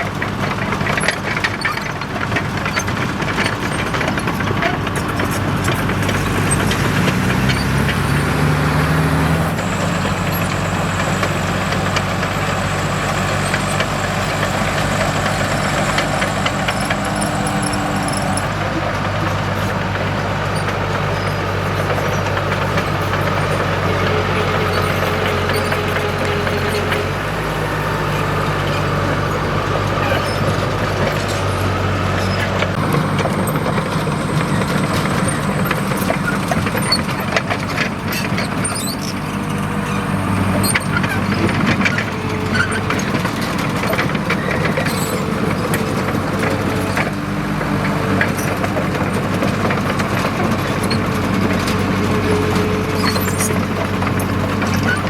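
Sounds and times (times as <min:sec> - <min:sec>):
bulldozer diesel engine running: 0:00.0 - 0:55.0
metal clanks and clicks: 0:30.0 - 0:47.2.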